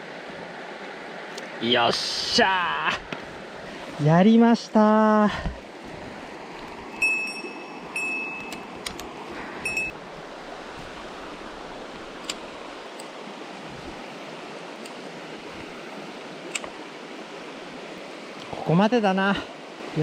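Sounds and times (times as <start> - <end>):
mountain stream flowing: 0.0 - 20.0
short high-pitched tones: 9.6 - 10.0.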